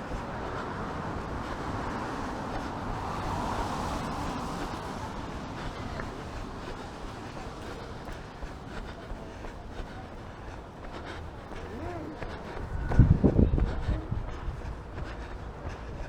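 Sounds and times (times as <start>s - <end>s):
steady traffic noise: 0.0s - 16.0s
vehicle tyre hiss on wet street: 0.1s - 8.4s.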